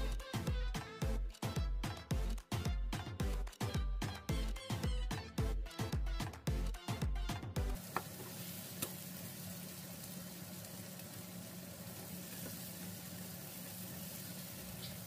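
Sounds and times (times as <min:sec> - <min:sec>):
peppers sizzling in a frying pan: 0:07.8 - 0:15.0.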